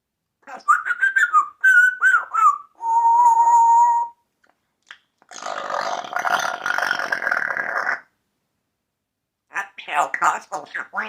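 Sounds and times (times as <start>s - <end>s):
parrot whistling: 0.6s - 4.2s
parrot raspy burp-like noise: 5.2s - 8.2s.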